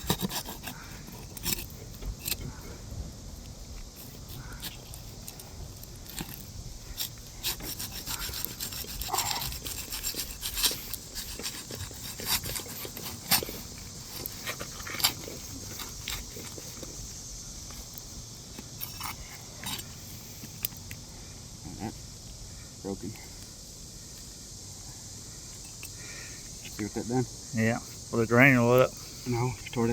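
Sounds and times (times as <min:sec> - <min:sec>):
shingles scraping and crackling: 0:00.0 - 0:02.5, 0:03.9 - 0:17.1.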